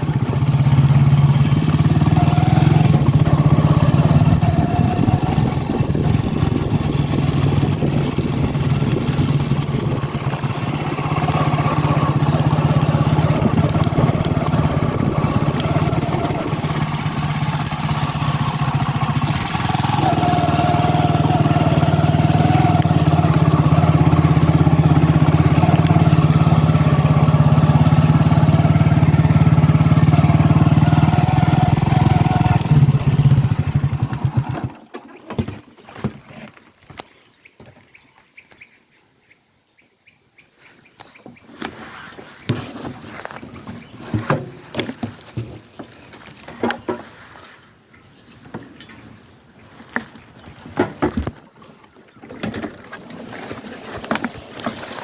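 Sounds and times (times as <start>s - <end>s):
road noise: 0.0s - 34.8s
vehicle engine running: 0.0s - 34.8s
wind noise: 4.2s - 10.8s, 13.2s - 17.7s.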